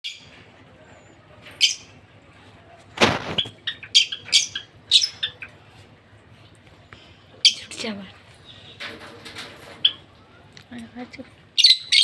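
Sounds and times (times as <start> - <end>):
parrots chirping: 1.6 - 2.0, 3.3 - 5.6, 11.6 - 12.0.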